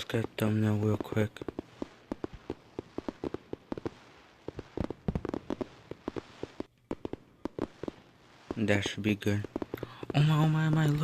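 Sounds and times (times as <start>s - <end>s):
fireworks popping and crackling: 0.0s - 11.0s.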